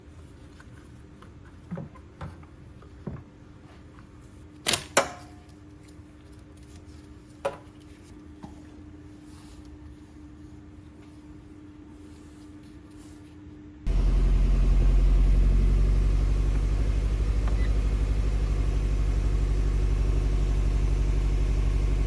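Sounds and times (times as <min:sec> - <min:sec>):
steady low hum: 0:13.8 - 0:22.0.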